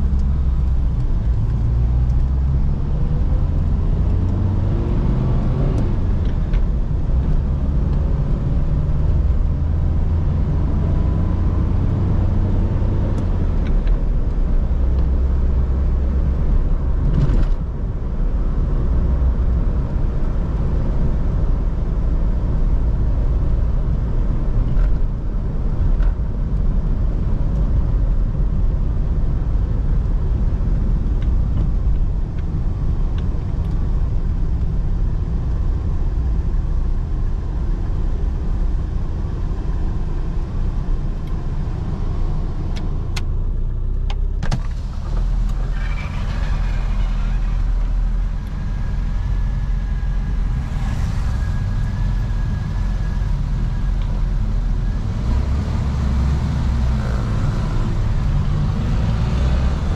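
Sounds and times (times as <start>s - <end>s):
car engine accelerating: 0.0s - 17.6s, 44.5s - 59.9s.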